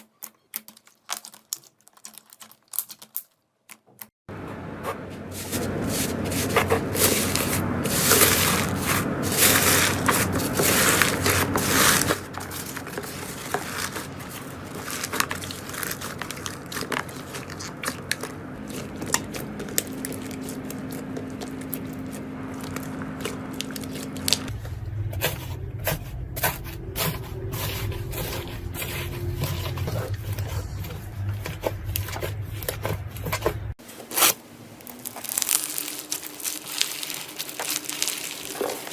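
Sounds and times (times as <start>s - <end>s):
slime crackling and popping: 0.0s - 3.8s, 34.2s - 38.9s.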